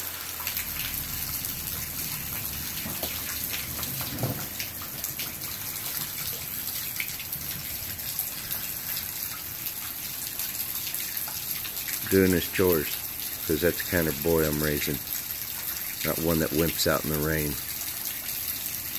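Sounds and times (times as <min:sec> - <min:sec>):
rain falling: 0:00.0 - 0:18.9
raindrops ticking: 0:00.0 - 0:18.9.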